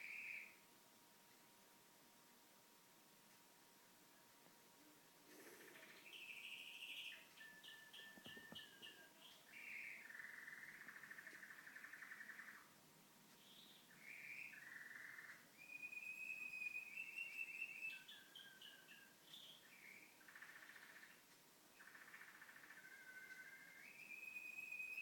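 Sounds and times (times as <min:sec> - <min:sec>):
canary singing trills: 0:00.0 - 0:00.6, 0:05.3 - 0:12.8, 0:13.4 - 0:25.0.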